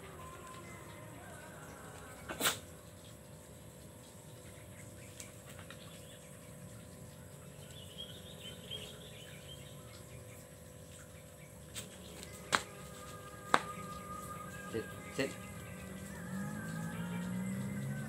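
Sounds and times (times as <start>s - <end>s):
faint bird chirping: 4.2s - 18.0s.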